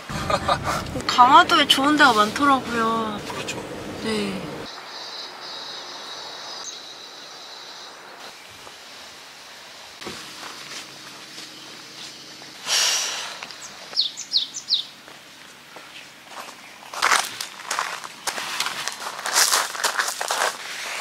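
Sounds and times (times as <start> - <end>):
birds chirping: 0.0 - 8.7, 10.6 - 18.4
steady high buzz: 0.0 - 17.0
bird sharp chirps: 13.5 - 14.9.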